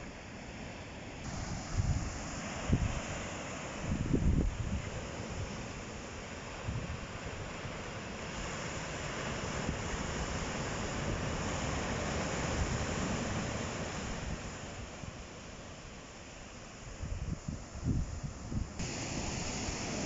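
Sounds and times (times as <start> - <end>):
sea waves breaking on shore: 0.0 - 20.0
wind buffeting microphone: 1.3 - 3.1, 3.8 - 5.5, 16.8 - 20.0.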